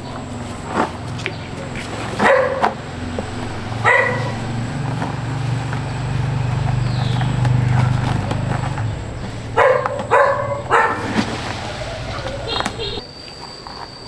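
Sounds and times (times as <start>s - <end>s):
steady low hum: 0.0s - 13.0s
dog barking: 2.1s - 4.9s, 7.1s - 13.0s.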